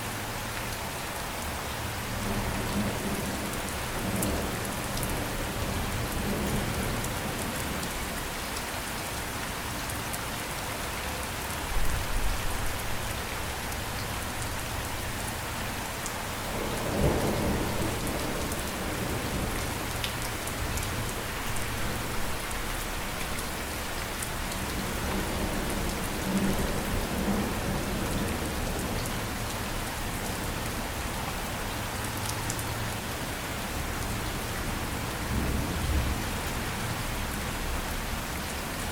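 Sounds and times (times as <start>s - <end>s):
steady rain falling: 0.0s - 38.9s
low thunder rumbling: 16.5s - 19.6s.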